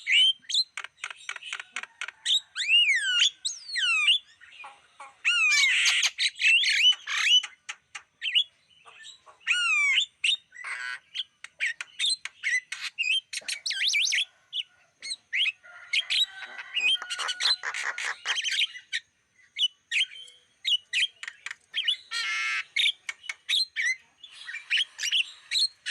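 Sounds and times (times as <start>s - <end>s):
bird squawking and whistling: 9.4s - 11.8s.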